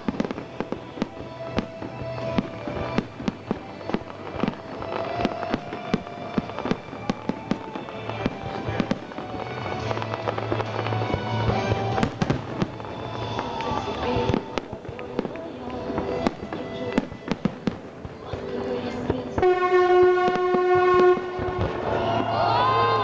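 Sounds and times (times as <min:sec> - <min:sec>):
fireworks bangs and crackles: 0:00.0 - 0:23.0
music playing: 0:00.0 - 0:23.0.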